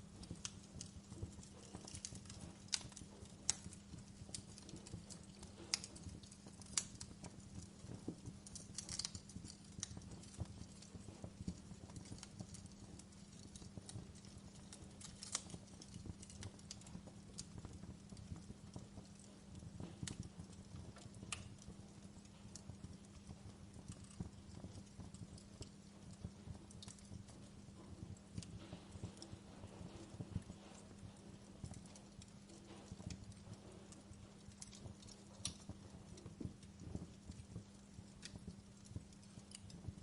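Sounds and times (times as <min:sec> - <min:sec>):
wood fire crackling and popping: 0:00.0 - 0:40.0.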